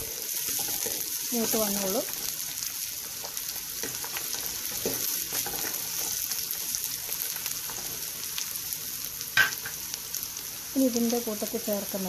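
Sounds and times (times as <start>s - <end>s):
spatula scraping a pan: 0.0s - 2.4s, 3.1s - 6.6s
food sizzling in a pan: 0.0s - 12.0s.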